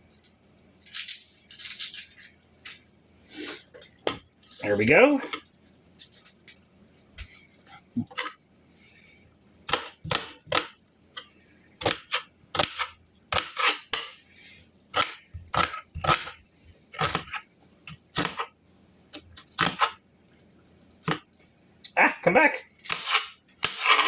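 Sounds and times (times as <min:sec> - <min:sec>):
knife chopping on cutting board: 0:09.7 - 0:10.7, 0:11.8 - 0:14.2, 0:14.9 - 0:18.5, 0:19.6 - 0:20.0, 0:22.8 - 0:24.0.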